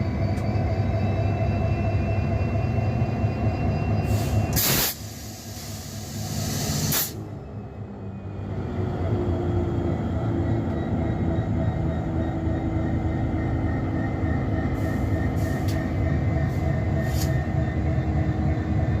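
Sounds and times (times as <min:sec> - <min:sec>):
diesel locomotive engine idling: 0:00.0 - 0:19.0
short hisses: 0:04.2 - 0:07.2.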